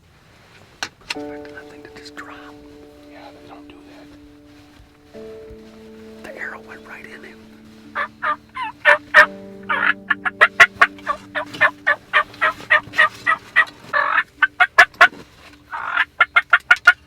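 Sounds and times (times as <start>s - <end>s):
turkey clucking: 6.3s - 15.1s, 15.7s - 17.0s.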